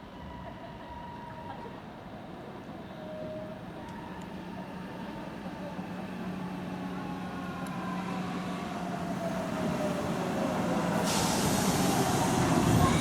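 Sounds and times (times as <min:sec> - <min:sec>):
train running noise: 0:03.6 - 0:13.0.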